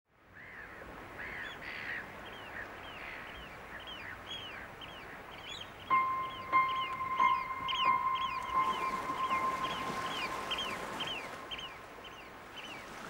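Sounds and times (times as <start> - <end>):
birds calling: 2.3 - 12.9
music with held notes: 5.9 - 11.5.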